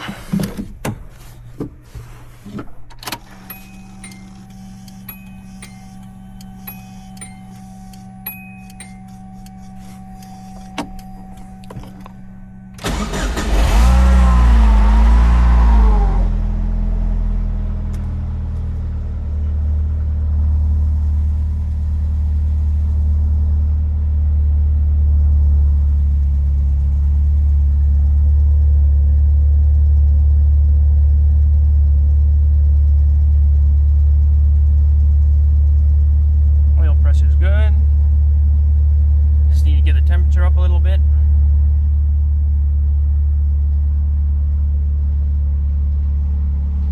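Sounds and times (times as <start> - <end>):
car engine starting and idling: 0.0 - 46.9.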